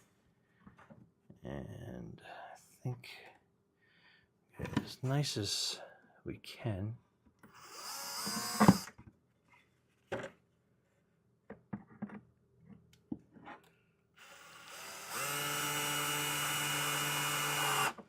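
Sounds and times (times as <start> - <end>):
screw gun driving screw into wood: 7.5 - 8.9, 14.2 - 18.0.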